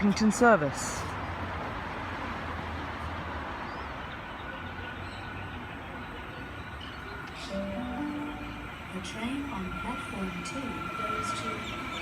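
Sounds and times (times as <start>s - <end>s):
electric train pulling in: 4.1s - 12.0s.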